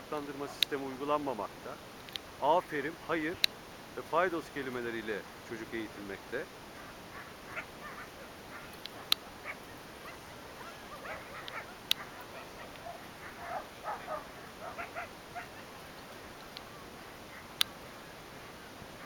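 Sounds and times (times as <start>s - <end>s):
dogs whining and yipping: 6.8s - 17.6s.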